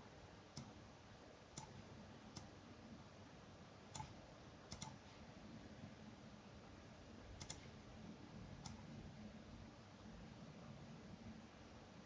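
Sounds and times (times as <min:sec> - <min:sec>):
computer mouse clicks: 0:00.5 - 0:00.8, 0:01.5 - 0:02.6, 0:03.9 - 0:05.0, 0:07.4 - 0:07.8, 0:08.6 - 0:08.9.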